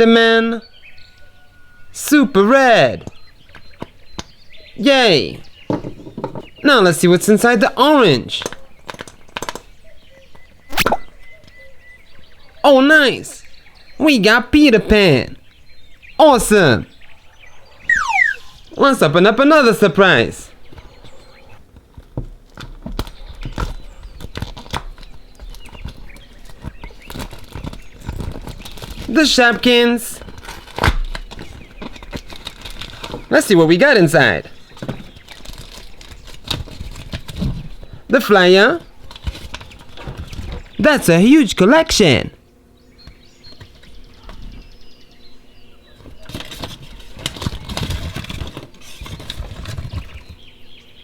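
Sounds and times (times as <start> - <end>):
plastic packaging clicking: 22.4 - 29.1, 30.2 - 33.3.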